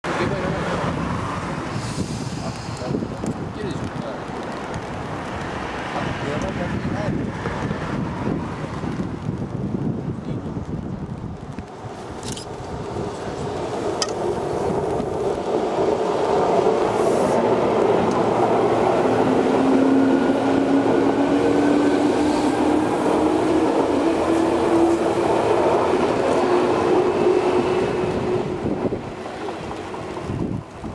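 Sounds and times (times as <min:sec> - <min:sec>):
electric train accelerating: 0:13.4 - 0:30.9.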